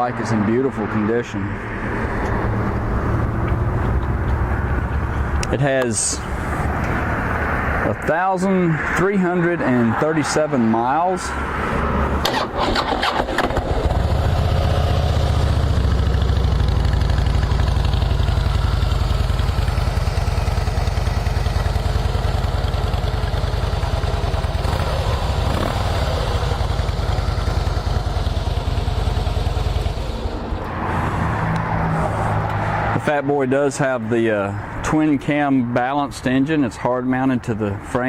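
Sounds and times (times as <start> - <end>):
motorcycle engine idling: 13.6 - 30.6.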